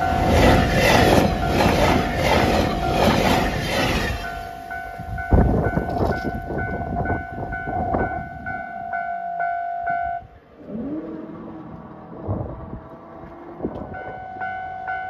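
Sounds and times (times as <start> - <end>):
train wheels clicking over rail joints: 0.0 - 4.8
pulsing high tone: 0.0 - 10.4
low rising tone: 9.7 - 14.4.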